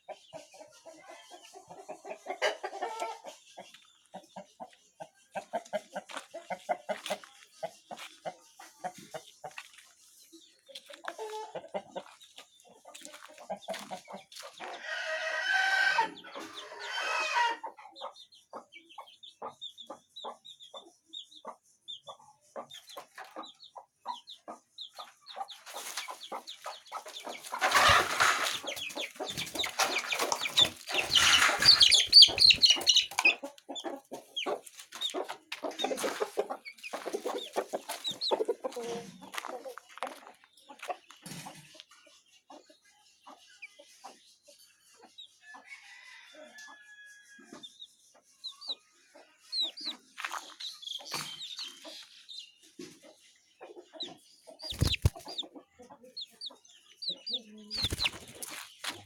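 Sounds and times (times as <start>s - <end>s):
chickens clucking: 0.0s - 59.0s
rustling and scuffling: 27.4s - 32.9s, 57.8s - 59.0s.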